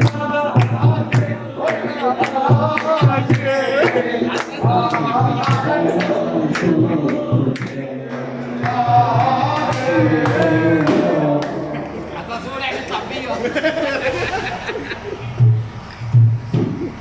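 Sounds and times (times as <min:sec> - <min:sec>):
steady handclaps: 0:00.0 - 0:07.8, 0:08.6 - 0:12.0
man singing a chant: 0:00.0 - 0:12.1.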